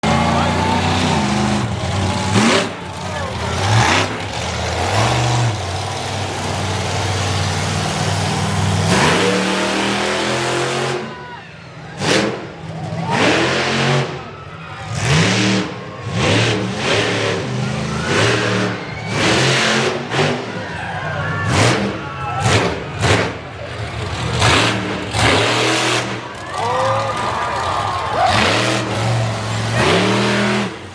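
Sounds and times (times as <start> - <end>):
truck engine revving: 0.0 - 11.2, 11.8 - 30.9.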